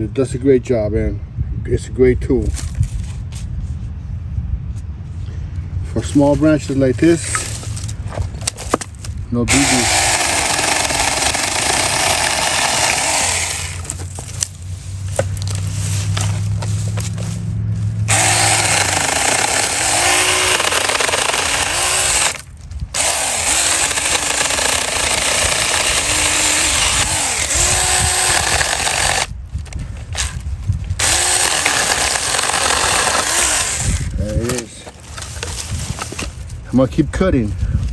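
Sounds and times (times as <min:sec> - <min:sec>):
electric chainsaw cutting wood: 0:09.5 - 0:14.1, 0:18.1 - 0:29.3, 0:31.0 - 0:34.1.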